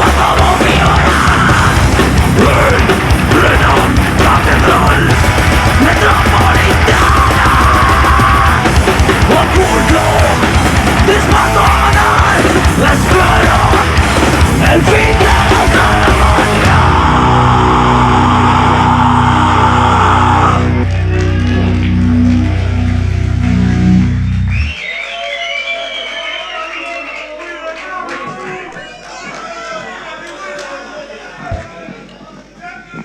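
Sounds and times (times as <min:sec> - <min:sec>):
heavy metal band playing: 0:00.0 - 0:24.8.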